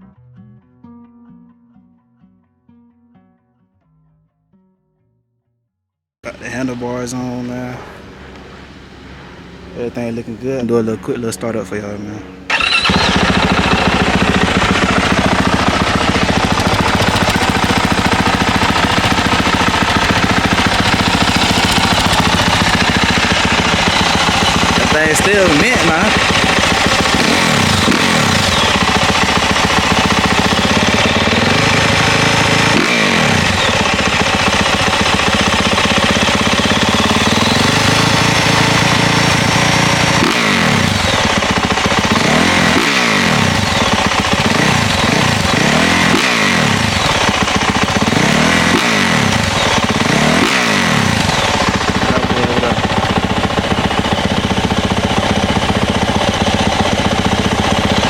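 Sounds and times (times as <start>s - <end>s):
dirt bike engine idling: 12.5s - 58.0s
dirt bike throttle blips: 12.5s - 58.0s.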